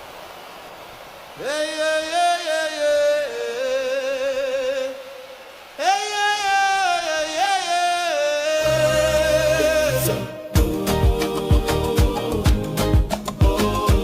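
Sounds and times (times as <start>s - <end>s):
wordless singing voice: 1.4s - 14.0s
low backing music: 8.6s - 14.0s.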